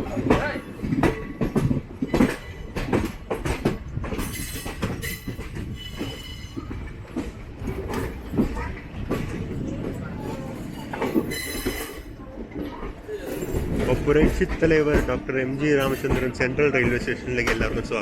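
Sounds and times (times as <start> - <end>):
train wheels clattering: 0.0 - 18.0.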